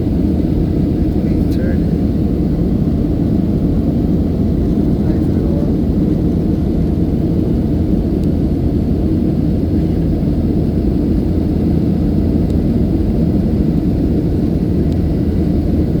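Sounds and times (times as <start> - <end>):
airplane engines rumbling: 0.0 - 16.0.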